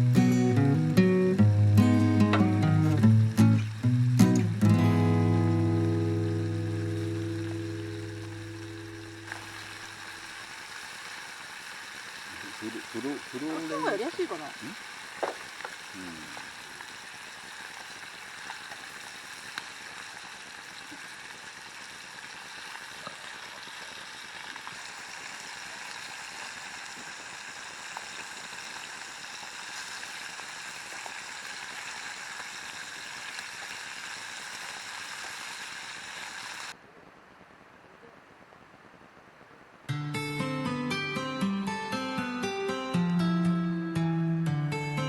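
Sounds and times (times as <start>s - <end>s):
faint pops: 0.0s - 36.7s
food sizzling in a pan: 0.0s - 36.8s.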